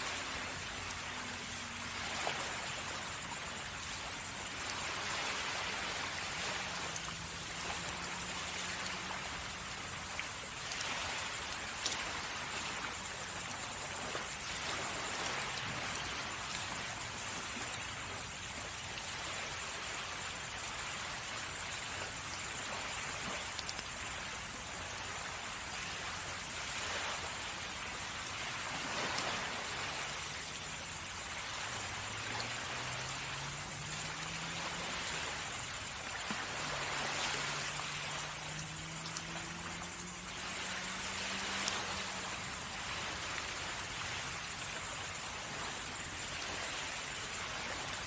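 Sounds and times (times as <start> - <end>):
sea waves washing on shore: 0.0 - 48.0.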